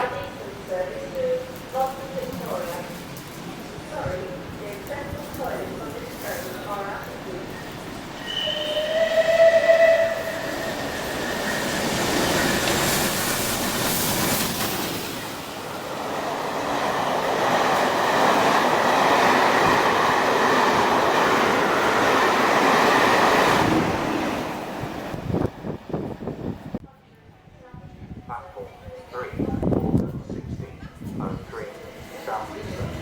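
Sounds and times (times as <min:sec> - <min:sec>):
train wheels rumbling on rails: 0:00.0 - 0:26.8, 0:29.4 - 0:33.0.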